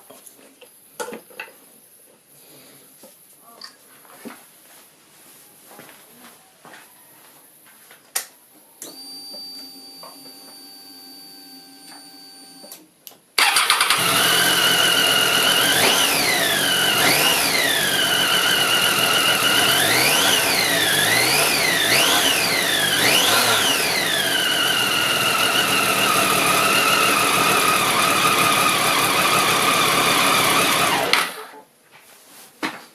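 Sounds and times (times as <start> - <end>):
click: 12.6 - 13.2
engine whine: 13.4 - 31.4
motorcycle engine revving: 13.4 - 31.4.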